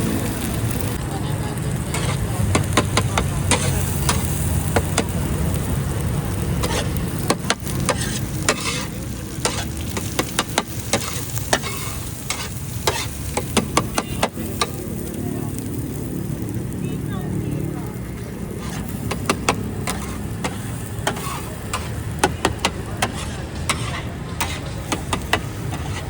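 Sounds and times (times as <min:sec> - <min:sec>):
food sizzling in oil: 0:00.0 - 0:26.0
metal spatula scraping griddle: 0:01.8 - 0:05.1, 0:06.6 - 0:14.8, 0:18.1 - 0:26.0.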